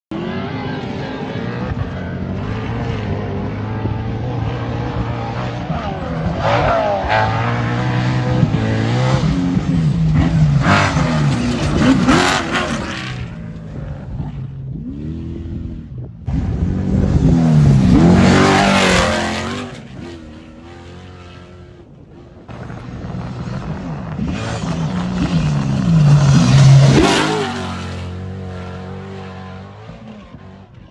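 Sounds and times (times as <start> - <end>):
truck engine revving past: 4.6 - 13.4, 16.4 - 30.5.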